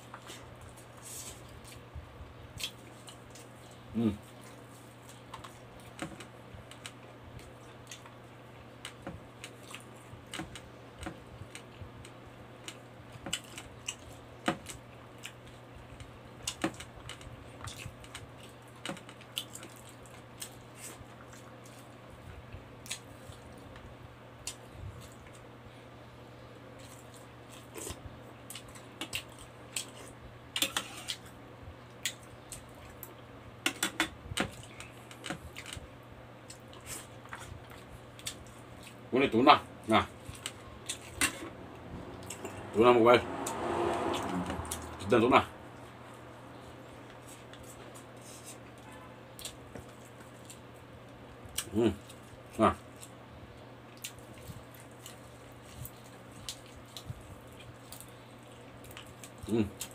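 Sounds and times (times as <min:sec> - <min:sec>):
low hum: 0:39.7 - 0:48.8
wet chewing and lip smacks: 0:53.9 - 0:59.9.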